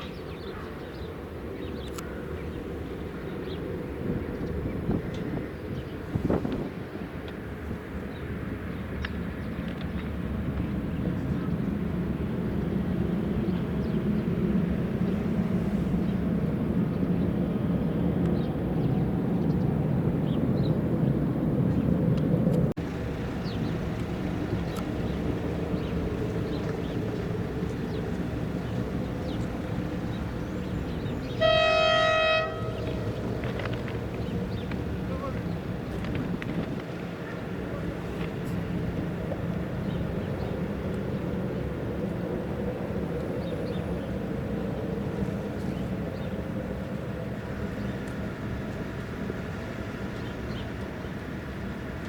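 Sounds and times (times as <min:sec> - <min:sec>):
locomotive rumbling: 0:21.7 - 0:52.0
locomotive horn blast: 0:28.2 - 0:33.3.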